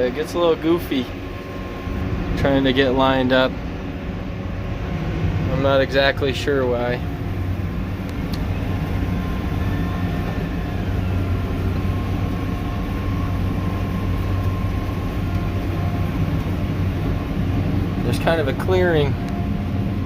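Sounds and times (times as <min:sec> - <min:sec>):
faint whine: 0:00.0 - 0:20.0
tractor diesel engine under load: 0:00.0 - 0:20.0.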